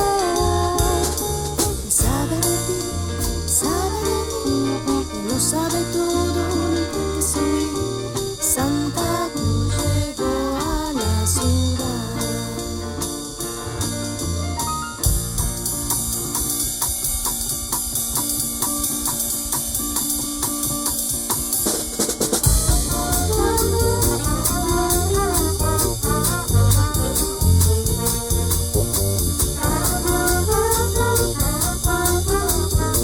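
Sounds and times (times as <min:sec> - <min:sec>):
brass horns melody: 0:00.0 - 0:08.1, 0:12.8 - 0:16.4, 0:22.4 - 0:33.0
bass line: 0:00.0 - 0:17.5, 0:22.4 - 0:33.0
drum kit beat: 0:00.0 - 0:33.0.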